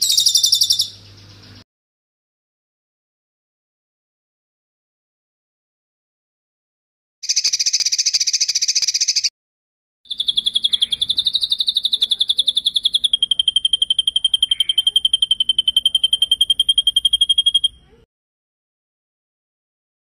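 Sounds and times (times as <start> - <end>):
songbird trilling: 0.0 - 1.6, 7.2 - 9.3, 10.1 - 18.0.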